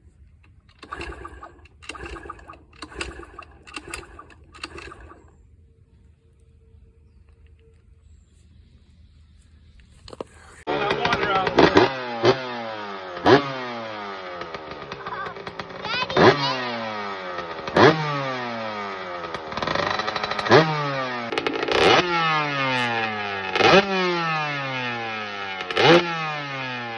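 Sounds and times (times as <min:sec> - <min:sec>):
two-stroke engine revving: 0:00.6 - 0:05.4, 0:10.6 - 0:26.9.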